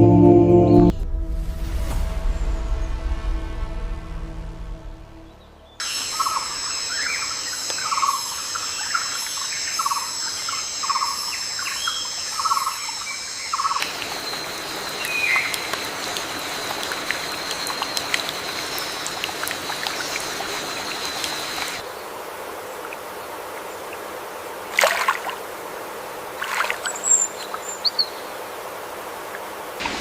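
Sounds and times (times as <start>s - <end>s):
high insect hum: 5.8s - 29.9s
stream water flowing: 13.6s - 30.0s.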